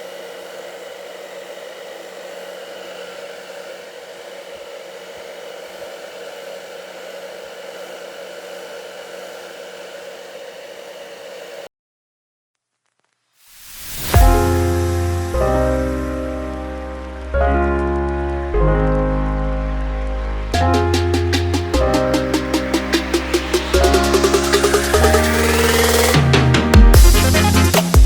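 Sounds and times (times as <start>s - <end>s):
small electric motor whirring: 0.0s - 11.7s, 20.6s - 26.2s.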